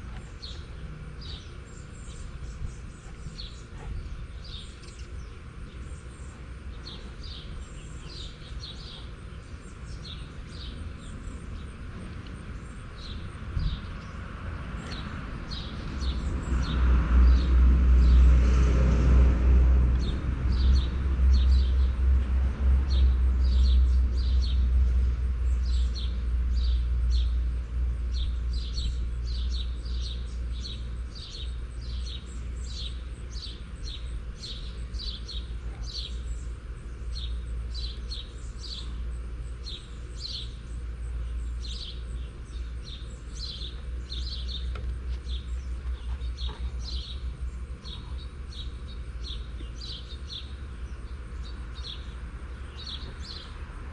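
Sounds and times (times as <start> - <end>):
bird chirping: 0.1 - 11.8, 28.1 - 53.7.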